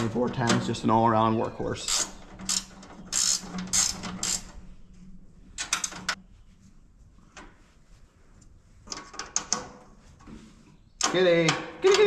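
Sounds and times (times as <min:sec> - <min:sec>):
metal clanking and rattling: 0:00.0 - 0:01.2, 0:01.8 - 0:04.7.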